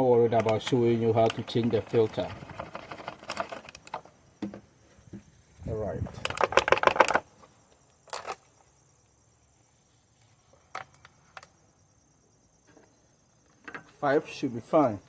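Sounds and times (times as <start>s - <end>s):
plastic bottles clicking and knocking: 6.1s - 7.4s.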